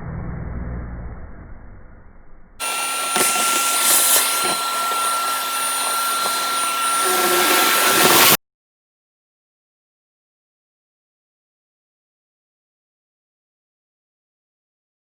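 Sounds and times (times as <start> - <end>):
electric motor running with hiss: 2.6 - 8.4.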